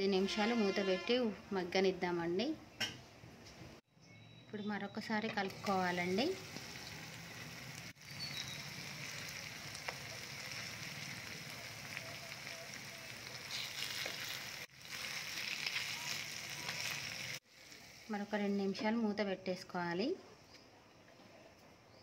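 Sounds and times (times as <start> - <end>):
fish sizzling in oil: 5.5 - 18.5.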